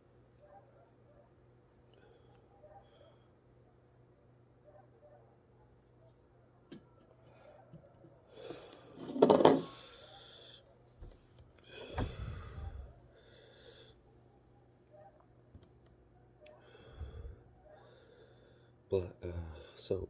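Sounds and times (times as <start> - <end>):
person breathing close to microphone: 11.7 - 14.0, 16.6 - 18.6.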